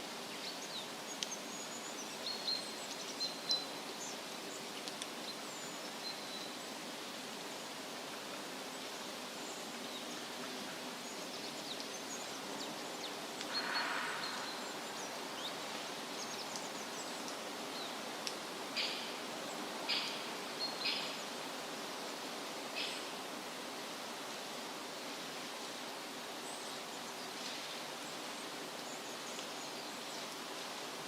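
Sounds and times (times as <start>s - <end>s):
rustle: 0.0s - 31.0s
steady hiss: 0.0s - 31.0s
faint bird chirps: 11.1s - 18.0s.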